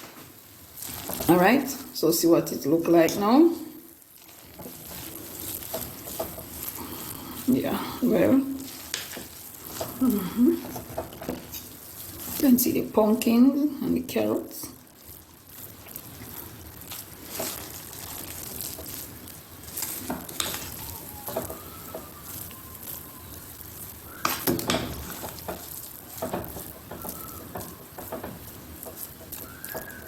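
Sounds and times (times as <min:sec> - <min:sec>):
pot sizzling and bubbling: 0:00.0 - 0:30.0
spoon knocking against pot: 0:26.2 - 0:30.0.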